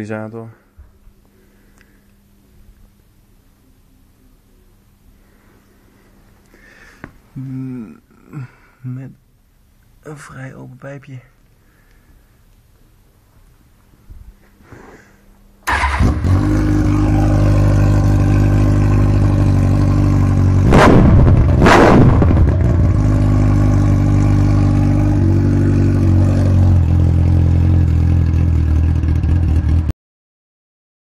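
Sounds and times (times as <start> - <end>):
motorcycle engine idling and revving: 15.7 - 29.9.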